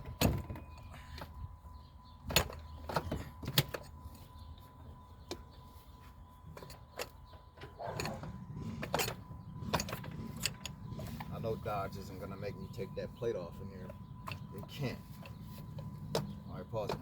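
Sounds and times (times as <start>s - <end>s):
low steady hum: 0.0s - 17.0s
tools and metal parts clicking: 2.2s - 4.3s, 6.4s - 11.8s, 13.9s - 17.0s.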